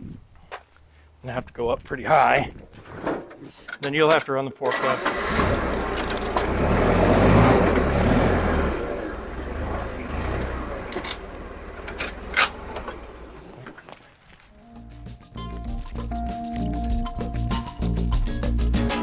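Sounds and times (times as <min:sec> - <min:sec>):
forklift engine running: 0:04.7 - 0:13.8.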